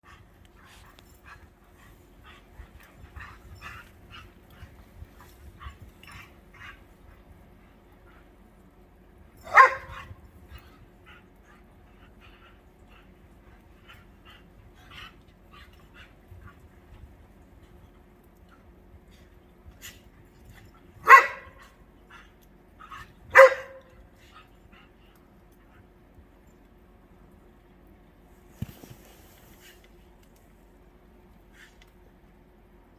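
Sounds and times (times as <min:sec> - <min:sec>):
dogs barking and yipping: 0:09.4 - 0:10.1, 0:21.0 - 0:21.6, 0:23.3 - 0:23.9.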